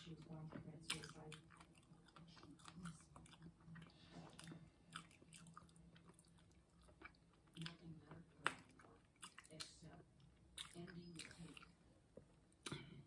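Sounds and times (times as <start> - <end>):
chewing and biting food: 0.0 - 11.8.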